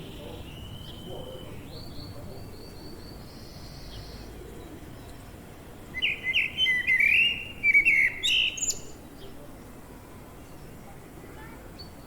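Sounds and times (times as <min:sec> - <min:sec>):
songbird chattering song: 0:06.0 - 0:09.0.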